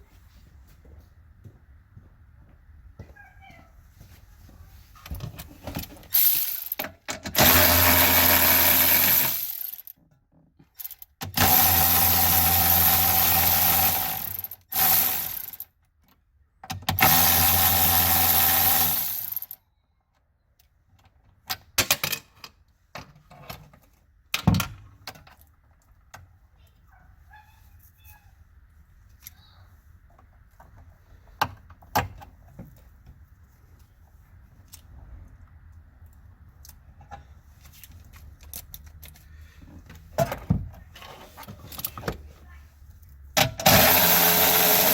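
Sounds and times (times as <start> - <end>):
clicks and knock of parts: 5.0 - 7.8, 19.1 - 26.3, 36.6 - 42.3
electric drill-driver running: 7.4 - 9.8, 11.4 - 15.6, 17.0 - 19.6, 43.6 - 44.9.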